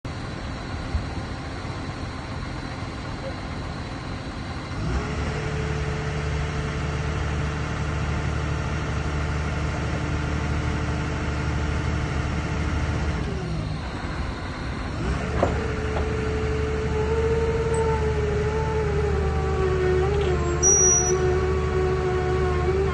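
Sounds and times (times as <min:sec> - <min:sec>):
diesel engine running: 0:00.0 - 0:22.9
machine whine: 0:12.1 - 0:22.9.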